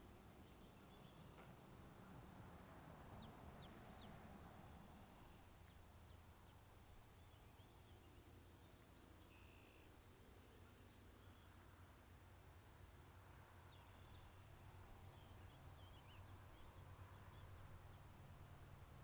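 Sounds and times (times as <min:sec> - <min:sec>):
faint bird chirps: 0:03.1 - 0:10.0.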